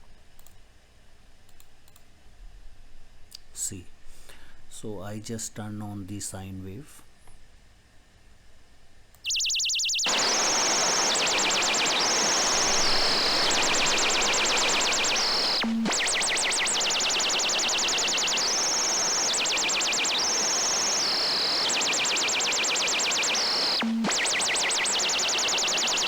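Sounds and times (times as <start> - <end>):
synthesized bird chirping: 9.2 - 26.0.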